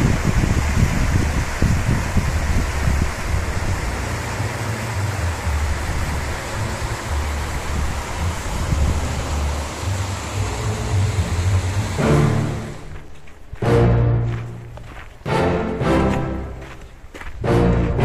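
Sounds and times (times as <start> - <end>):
outdoor rushing noise: 0.0 - 18.0
music: 3.8 - 18.0.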